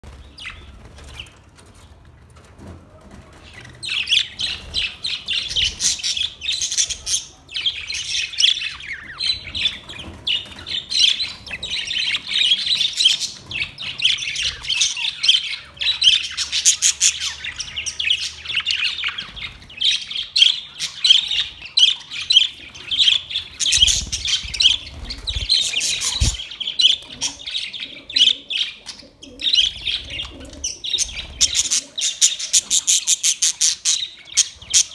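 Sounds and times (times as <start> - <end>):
parrots chattering and chirping: 3.4 - 34.9.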